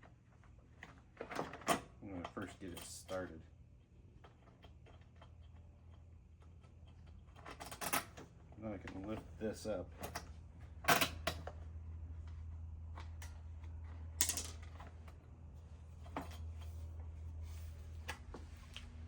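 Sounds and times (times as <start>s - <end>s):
steady low hum: 0.0s - 19.0s
metal parts clicking and scraping: 14.2s - 15.2s.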